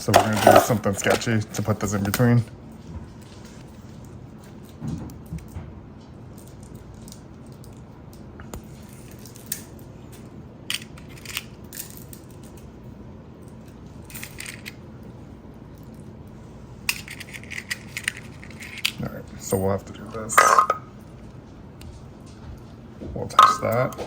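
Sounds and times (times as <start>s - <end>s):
low room noise: 0.0s - 24.0s.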